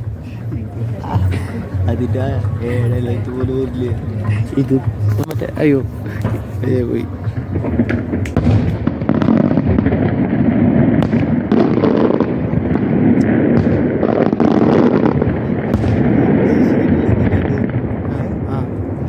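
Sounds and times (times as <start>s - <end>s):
fireworks bursts rumbling: 0.0s - 19.0s
fireworks crackling pops: 5.1s - 18.2s.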